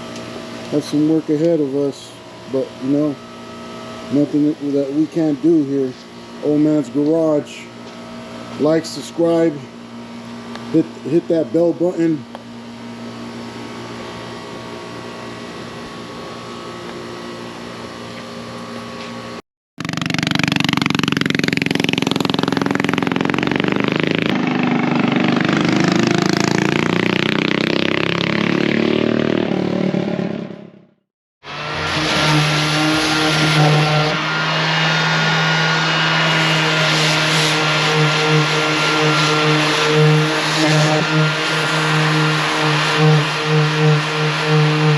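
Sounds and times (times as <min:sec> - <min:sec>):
vehicle engine running and revving: 0:19.8 - 0:44.9.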